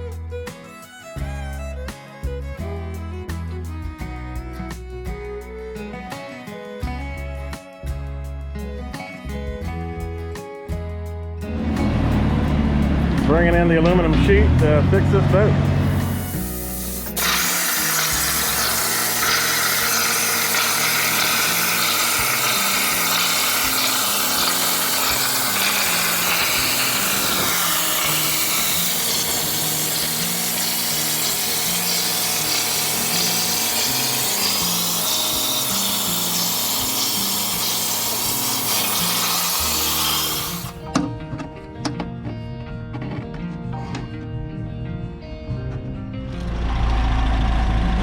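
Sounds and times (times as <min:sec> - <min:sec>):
background music with bassline: 0:00.0 - 0:17.2, 0:40.7 - 0:48.0
power tool cutting aluminum: 0:11.6 - 0:40.9.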